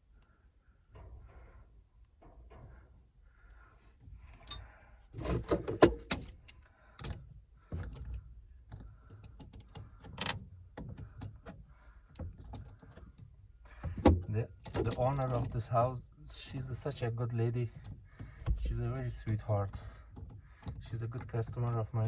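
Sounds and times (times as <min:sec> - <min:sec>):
tools clicking and rattling: 0:05.2 - 0:15.8.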